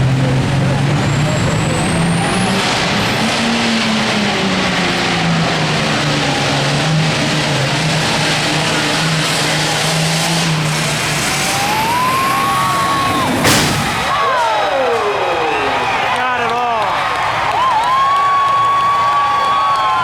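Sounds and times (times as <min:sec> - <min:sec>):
tractor diesel engine under load: 0:00.0 - 0:14.5.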